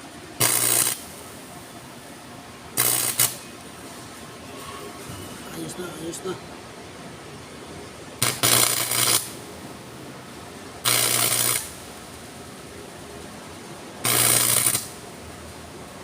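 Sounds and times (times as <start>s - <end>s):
welding arc crackling: 0.0s - 1.5s, 2.7s - 3.6s, 8.2s - 9.5s, 10.8s - 12.3s, 14.0s - 15.2s
welding machine hum: 0.0s - 2.1s, 2.7s - 4.2s, 8.2s - 9.6s, 10.7s - 12.8s, 14.0s - 15.4s.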